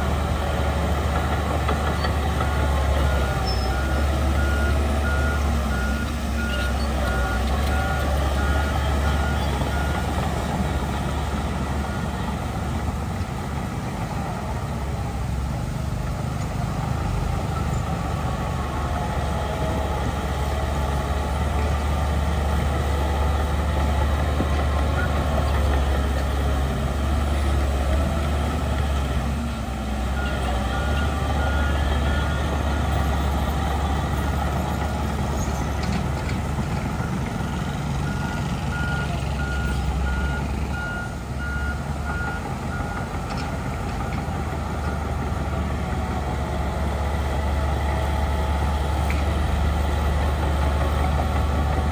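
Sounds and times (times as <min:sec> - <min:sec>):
heavy diesel machinery engine: 0:00.0 - 0:51.9
reversing alarm beeping: 0:37.0 - 0:43.0.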